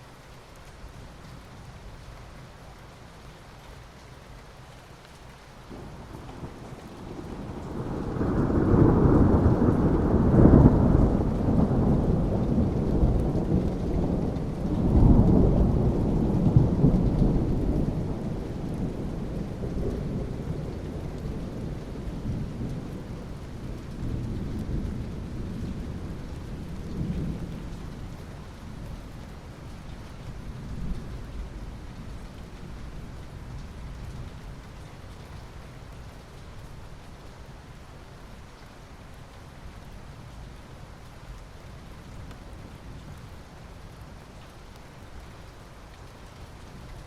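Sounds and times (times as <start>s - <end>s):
steady rain: 0.0s - 47.0s
rolling thunder: 5.7s - 28.8s.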